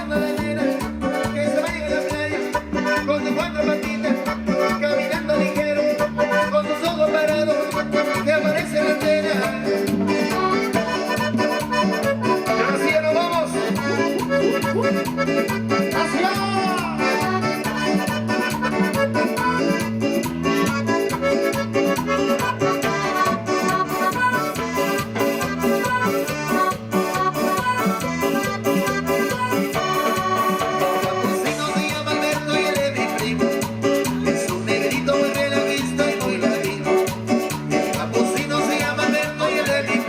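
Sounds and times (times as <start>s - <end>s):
accordion-like lead melody: 0.0s - 40.0s
bass and percussion beat: 0.0s - 40.0s.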